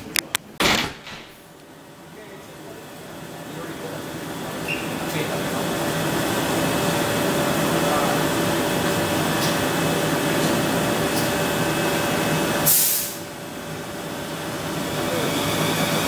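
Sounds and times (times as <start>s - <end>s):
train equipment humming: 1.3s - 16.0s
air hiss from train: 12.6s - 13.3s.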